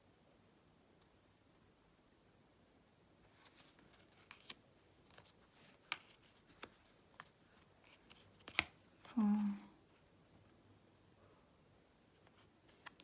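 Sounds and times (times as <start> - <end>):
cards tapping and clicking: 3.9 - 8.8.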